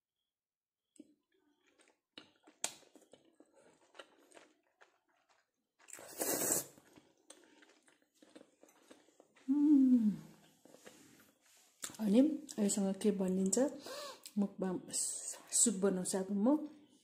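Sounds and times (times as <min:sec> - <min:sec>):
chewing and lip-smacking: 0:01.0 - 0:09.5.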